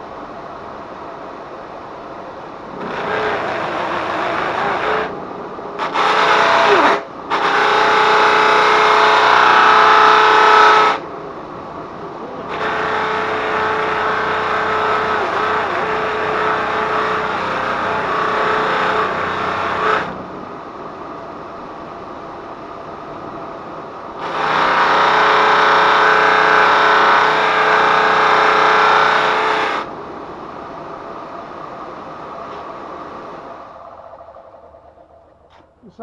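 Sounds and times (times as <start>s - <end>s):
grinder spinning sanding wheel: 2.7s - 5.2s, 5.8s - 11.0s, 12.4s - 20.2s, 24.2s - 29.9s.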